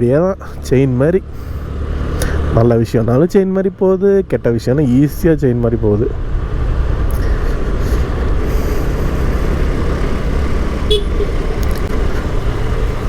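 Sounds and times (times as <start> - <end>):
wind and road noise: 0.0 - 13.0
short horn beep: 10.9 - 11.4.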